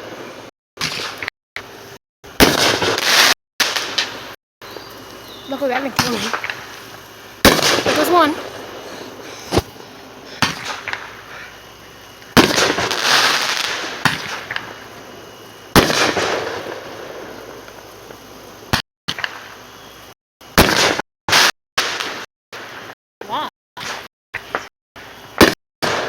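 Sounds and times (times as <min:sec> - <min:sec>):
crackling hissing shower: 0:00.0 - 0:20.8
fireworks bangs: 0:02.3 - 0:19.5, 0:20.6 - 0:22.9.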